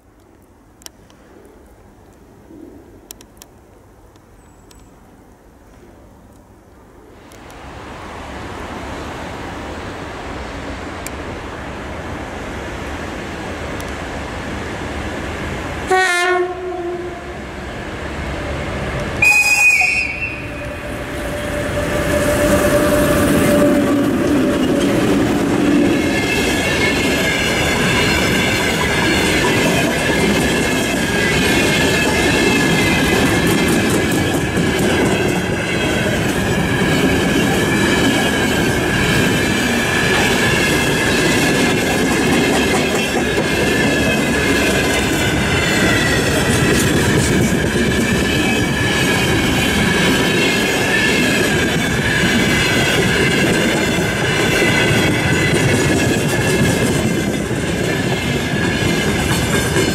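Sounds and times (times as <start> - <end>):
train rumble and wheel clatter: 7.2 - 59.9
locomotive whistle: 15.9 - 17.3, 19.2 - 25.1
locomotive horn blast: 15.9 - 17.4, 19.2 - 24.8.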